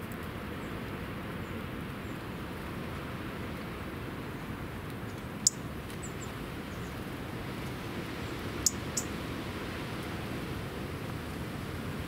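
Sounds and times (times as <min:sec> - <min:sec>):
outdoor hiss and low rumble: 0:00.0 - 0:12.0
songbird chirping: 0:05.4 - 0:07.0, 0:08.1 - 0:09.2.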